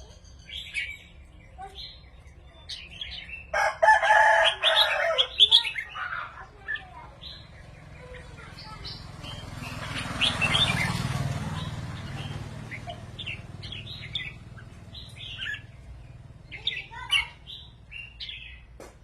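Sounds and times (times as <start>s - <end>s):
birds singing whistled phrases: 0.0s - 18.8s
broad rushing noise: 7.8s - 15.7s.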